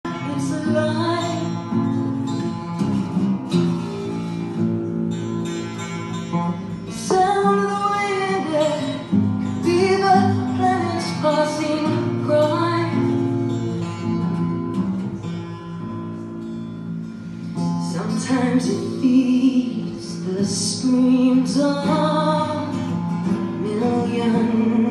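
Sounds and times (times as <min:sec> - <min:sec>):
person singing: 0:00.0 - 0:01.6, 0:23.6 - 0:24.9
acoustic guitar music: 0:00.0 - 0:24.9.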